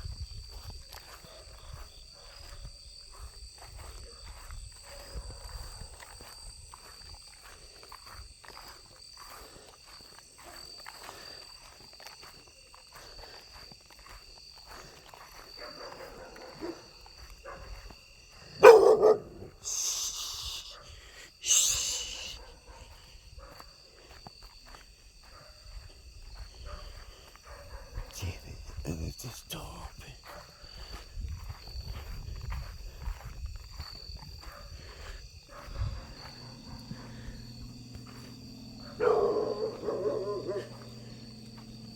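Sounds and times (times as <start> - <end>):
night insects chorus: 0.0 - 41.9
bark-like animal call: 18.6 - 19.5, 38.8 - 41.1.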